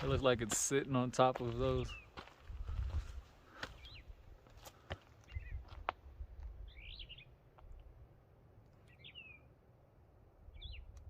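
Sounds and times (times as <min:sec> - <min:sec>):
songbird chirping: 0:00.8 - 0:02.3, 0:03.6 - 0:04.2, 0:05.2 - 0:05.9, 0:06.6 - 0:07.9, 0:08.6 - 0:09.6, 0:10.4 - 0:11.0.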